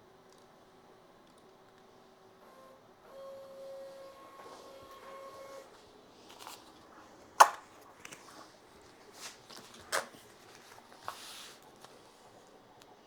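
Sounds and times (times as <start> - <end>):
paper rustling: 4.2 - 12.4.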